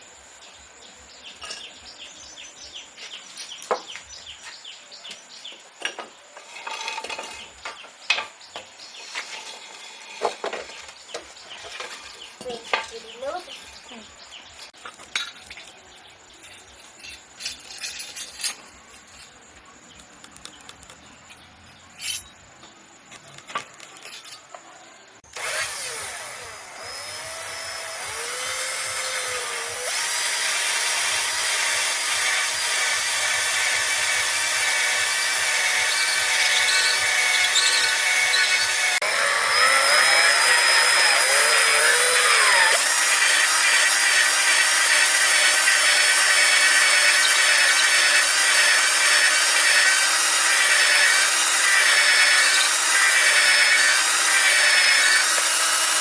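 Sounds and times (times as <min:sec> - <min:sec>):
sawing wood: 0:25.2 - 0:56.0.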